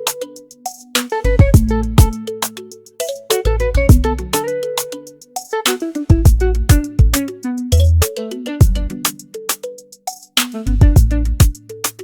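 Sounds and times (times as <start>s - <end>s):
plucked melody notes: 0.0s - 9.9s, 10.5s - 12.0s
steady drum beat: 0.7s - 2.2s, 3.9s - 4.2s, 6.1s - 7.3s, 8.6s - 9.2s, 10.0s - 12.0s.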